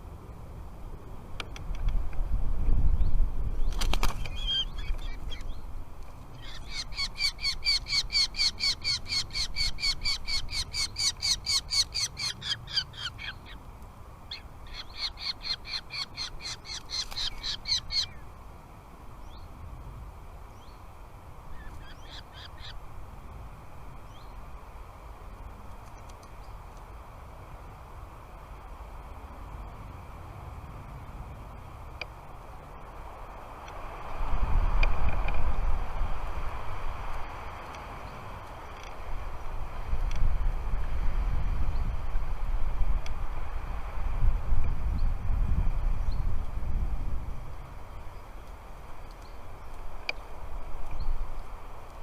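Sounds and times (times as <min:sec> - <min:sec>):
falcon calling: 0:06.4 - 0:13.6, 0:14.3 - 0:18.2.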